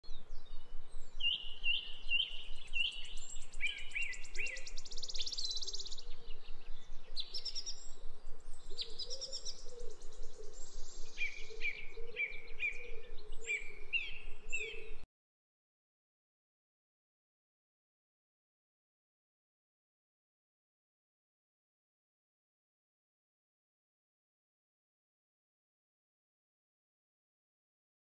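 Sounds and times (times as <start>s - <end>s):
lower bird warbling: 0.3s - 15.0s
bird whistled notes: 1.2s - 6.2s.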